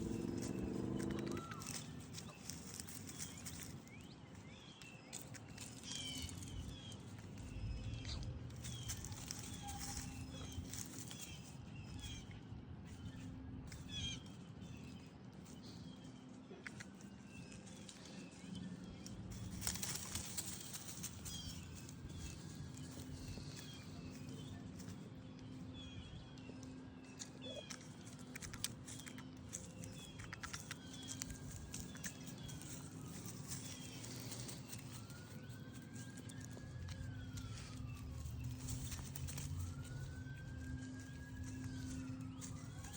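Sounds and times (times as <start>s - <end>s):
low hum: 0.0s - 3.6s.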